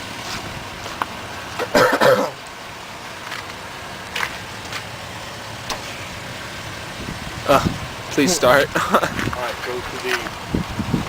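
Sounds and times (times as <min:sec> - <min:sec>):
steady background noise: 0:00.0 - 0:11.0
person coughing loudly: 0:01.6 - 0:02.4.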